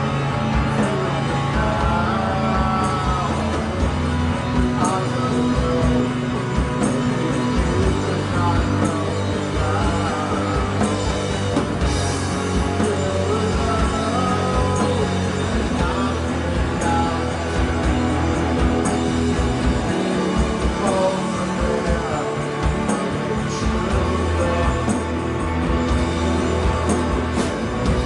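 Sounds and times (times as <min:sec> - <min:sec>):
rock band jamming: 0:00.0 - 0:28.0.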